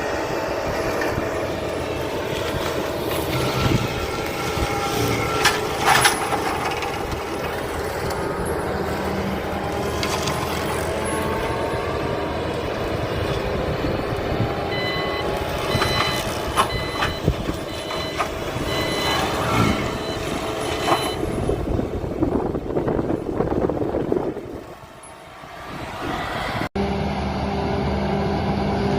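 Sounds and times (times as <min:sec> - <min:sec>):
forestry mulcher running: 0:00.0 - 0:28.9
high-pitched beeping: 0:14.7 - 0:21.4.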